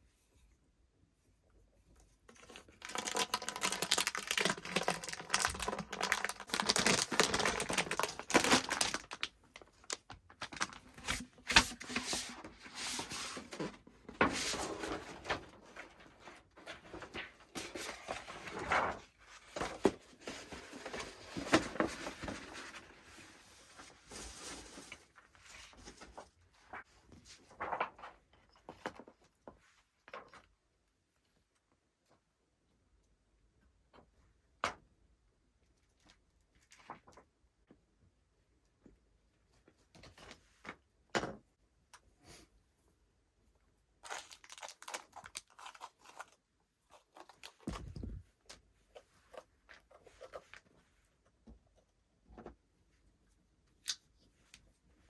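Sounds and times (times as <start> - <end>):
rustling and crinkling: 1.8 - 30.5, 44.0 - 51.8.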